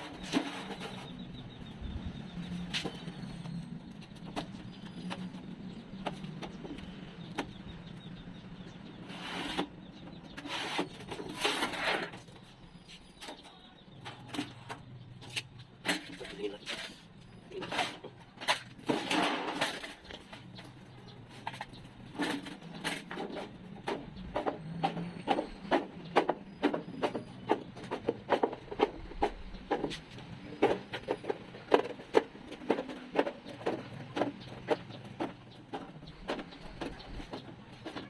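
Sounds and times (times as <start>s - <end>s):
hand tools knocking and clicking: 17.6s - 38.0s.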